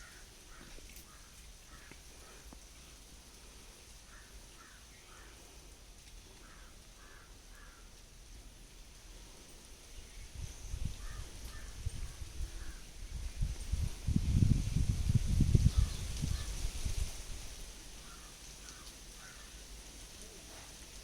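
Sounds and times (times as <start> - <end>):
bird calling faintly: 0.0 - 3.0, 4.0 - 5.6, 6.3 - 8.0.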